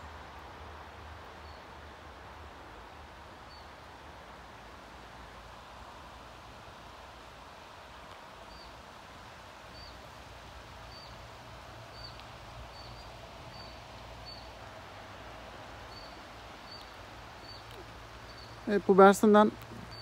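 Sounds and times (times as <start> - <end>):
small bird chirping: 11.9 - 14.5, 15.9 - 18.7, 19.6 - 20.0.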